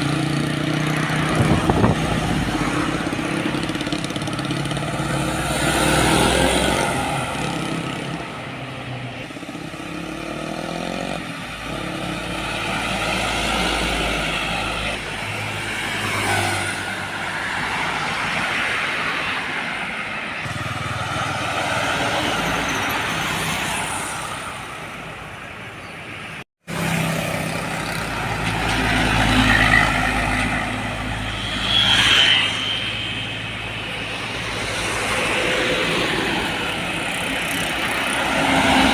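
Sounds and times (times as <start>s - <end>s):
heavy trucks passing: 0.0s - 25.3s, 26.2s - 38.9s.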